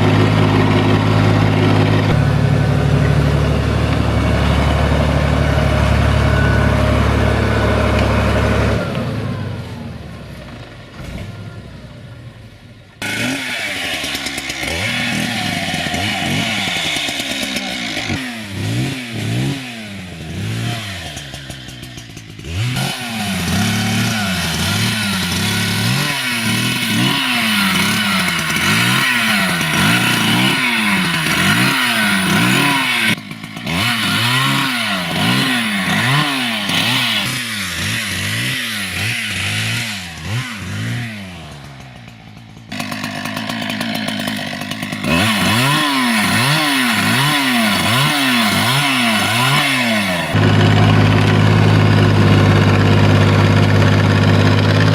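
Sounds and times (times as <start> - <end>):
chainsaw revving cutting wood: 0.0 - 10.1, 13.0 - 54.9
tractor engine running: 0.0 - 54.9.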